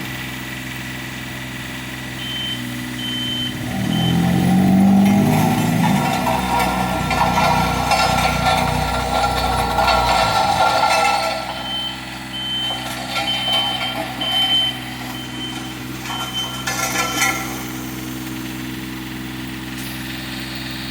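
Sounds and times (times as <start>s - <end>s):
diesel engine running: 0.0s - 20.9s
reverse alarm beeps: 2.2s - 4.3s, 11.7s - 13.6s.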